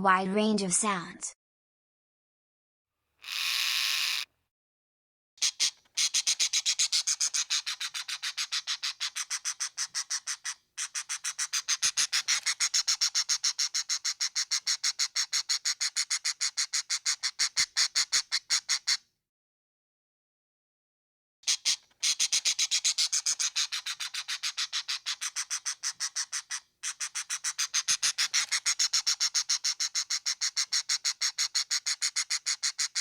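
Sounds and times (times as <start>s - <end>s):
rapid high animal chirps: 3.2s - 4.3s.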